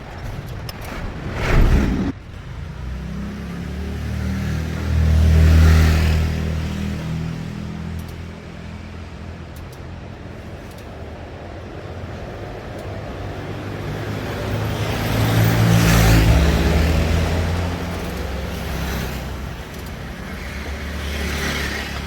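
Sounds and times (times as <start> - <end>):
loud clattering: 0.0 - 2.4.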